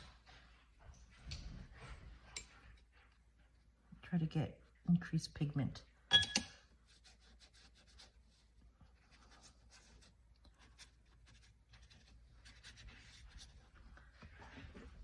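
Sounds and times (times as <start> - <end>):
brush strokes on wet paper: 6.8 - 14.4.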